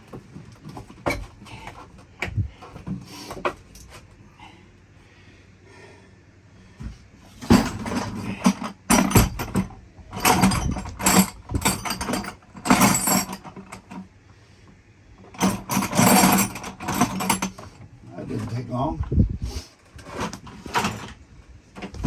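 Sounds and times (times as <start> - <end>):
metal clattering and rattling: 7.4 - 14.0, 15.3 - 18.8, 19.9 - 21.2.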